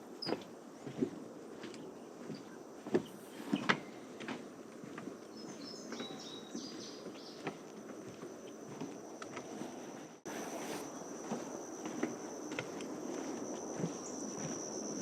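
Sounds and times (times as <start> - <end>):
footsteps on a trail: 0.0 - 15.0
songbird singing: 0.0 - 15.0.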